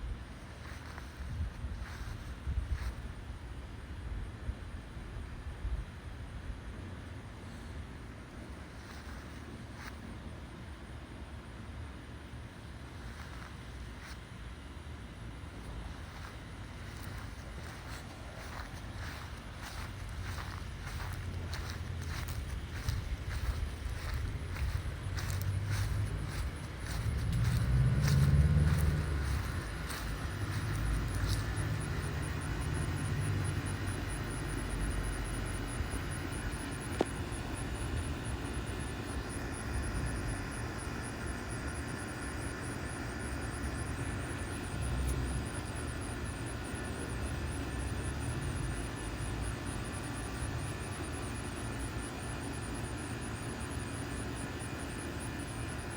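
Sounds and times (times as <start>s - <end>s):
jet engines rumbling: 15.3s - 42.2s.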